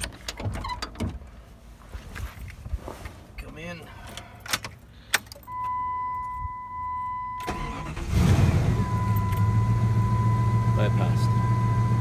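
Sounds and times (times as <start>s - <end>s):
car engine cranking and idling: 3.9s - 12.0s
high warning tone: 8.7s - 12.0s.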